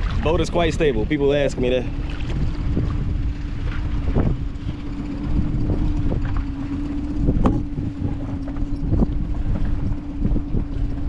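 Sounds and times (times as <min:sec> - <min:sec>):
wind buffeting microphone: 0:00.0 - 0:11.0
steady hum: 0:01.4 - 0:11.0.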